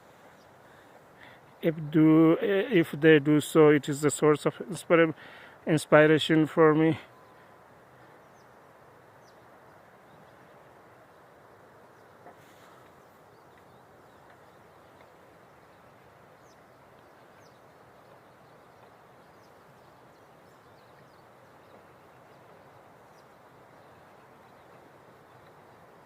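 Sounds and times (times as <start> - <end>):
steady rushing hiss: 0.0 - 26.0
faint bird chirps: 6.9 - 11.3.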